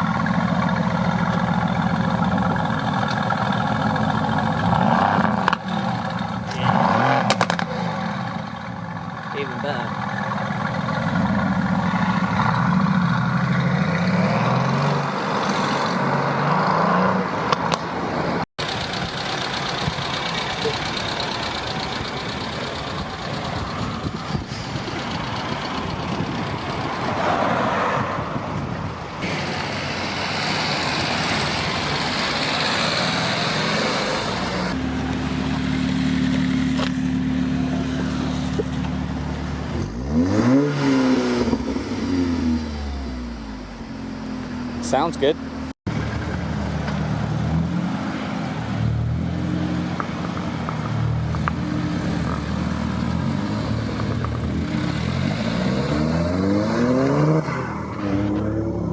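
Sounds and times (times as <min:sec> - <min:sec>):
engine idling: 0:00.0 - 0:04.7, 0:18.6 - 0:26.8
car engine revving: 0:00.0 - 0:08.6, 0:29.2 - 0:58.9
traffic noise: 0:00.0 - 0:58.9.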